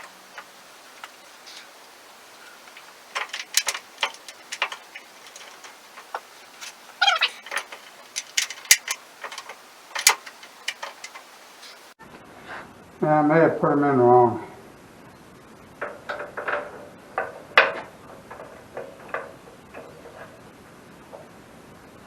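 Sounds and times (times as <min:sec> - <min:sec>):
metal parts and tools clinking: 0:00.0 - 0:11.9
short squeak: 0:07.0 - 0:07.7.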